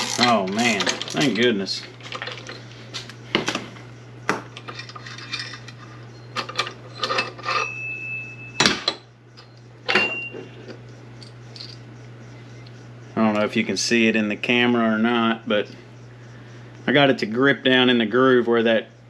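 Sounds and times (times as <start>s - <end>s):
steel tools clanking: 0.0s - 2.7s, 4.6s - 7.9s
steady low hum: 0.0s - 19.0s.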